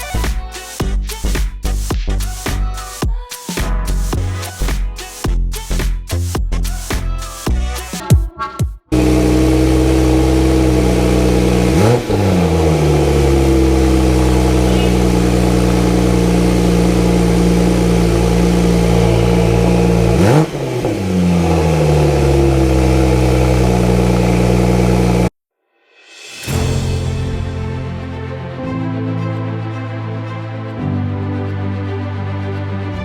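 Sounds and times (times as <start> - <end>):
car engine idling and revving: 8.9 - 25.3.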